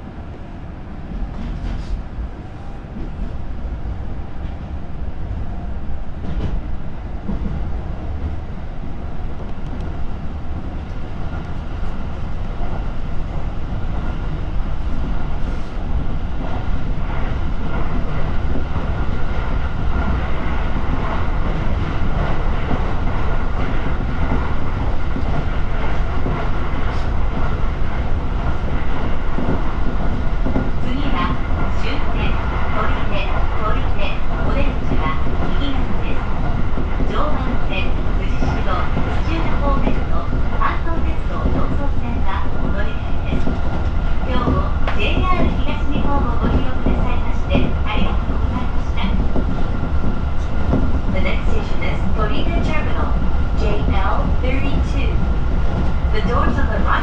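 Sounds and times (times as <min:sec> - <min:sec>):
train wheels rumbling on rail: 0:00.0 - 0:57.0
faint rail clicks: 0:09.4 - 0:10.0.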